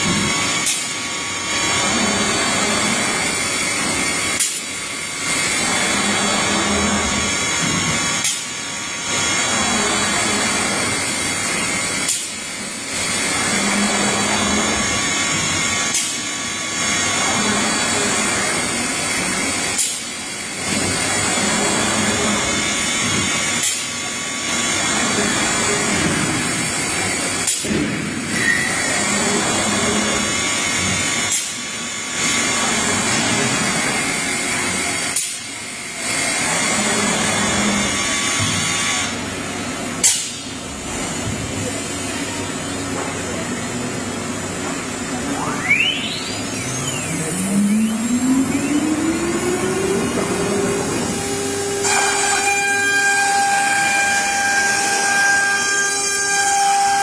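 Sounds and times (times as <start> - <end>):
machining center running: 0.0 - 56.1
cnc router whirring: 0.0 - 57.0
spindle whine: 45.0 - 53.8.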